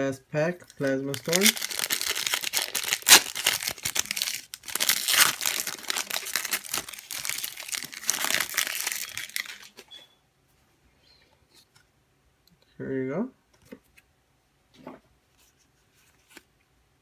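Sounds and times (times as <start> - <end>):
foil wrapper crinkling and tearing: 0.6 - 9.8.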